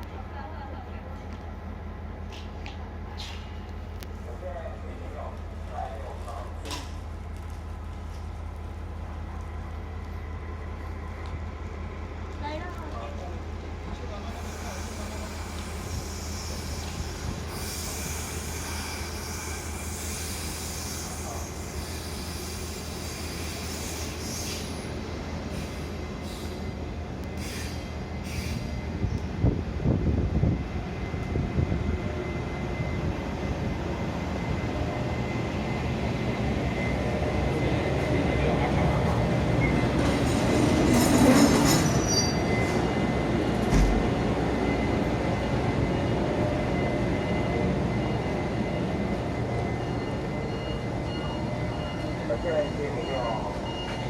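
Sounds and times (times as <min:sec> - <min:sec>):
train rumbling on rails: 0:00.0 - 0:54.0
train wheels squealing: 0:14.2 - 0:29.3, 0:39.5 - 0:43.2
thump: 0:43.7 - 0:44.0.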